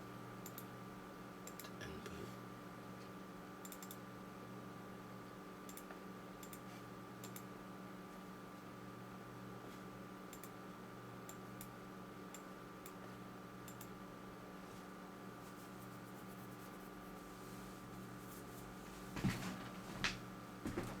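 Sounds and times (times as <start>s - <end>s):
faint electrical hum: 0.0s - 21.0s
computer clicks: 0.4s - 0.7s, 1.4s - 1.8s, 3.6s - 4.0s, 5.7s - 6.6s, 7.2s - 7.5s, 10.3s - 10.6s, 13.6s - 14.0s.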